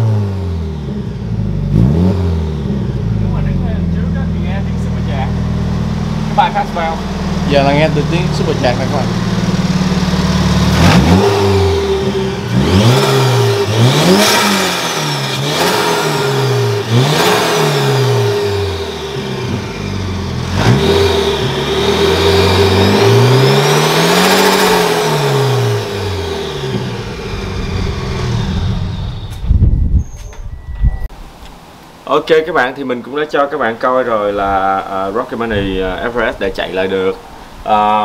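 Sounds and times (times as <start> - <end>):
car engine revving: 0.0 - 30.0
supercharger whine: 0.0 - 31.6.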